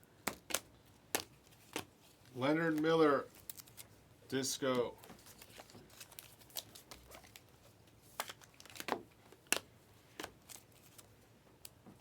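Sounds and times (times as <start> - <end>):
foil wrapper crinkling: 1.5 - 3.9, 5.1 - 9.6.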